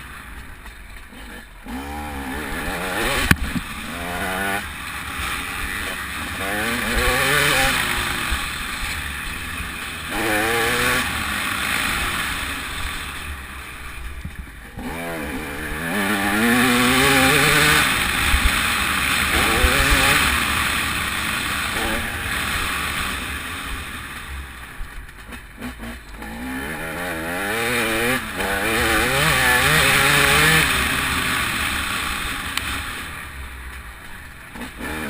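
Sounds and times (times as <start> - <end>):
motocross engine revving: 1.0 - 24.5, 25.3 - 33.5, 34.4 - 35.0.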